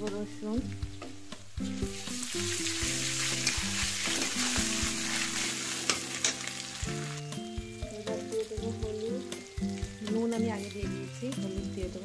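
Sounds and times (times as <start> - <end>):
onions sizzling in hot oil: 0.0 - 12.0
metal spatula scraping pan: 2.6 - 6.6.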